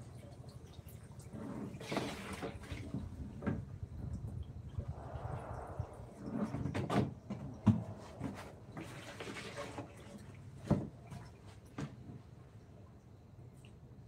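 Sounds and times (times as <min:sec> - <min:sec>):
hissy scraping or rustling: 0:04.8 - 0:10.2.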